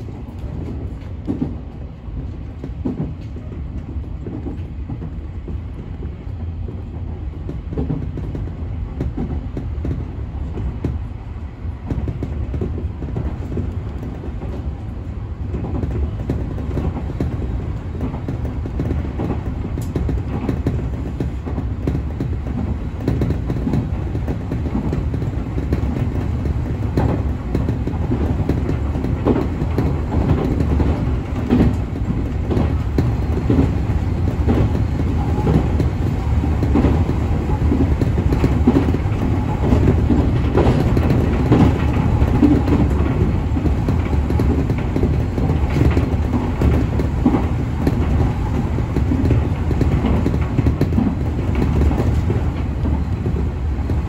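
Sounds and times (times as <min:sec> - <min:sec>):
train low rumble: 0:00.0 - 0:54.0
wheels clicking over track: 0:11.8 - 0:54.0.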